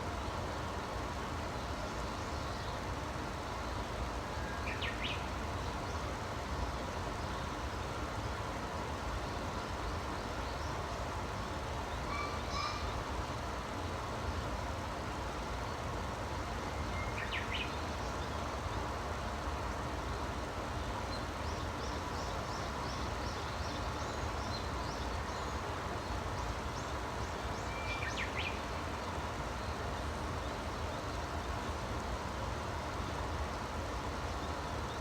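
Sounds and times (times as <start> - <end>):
bird chirped call: 12.0 - 13.0, 27.6 - 28.6.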